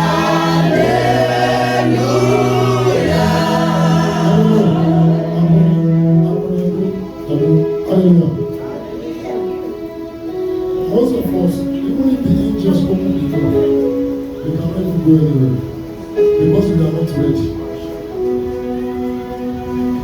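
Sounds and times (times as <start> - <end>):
choir and congregation singing: 0.0 - 7.0
bass accompaniment: 0.0 - 8.3.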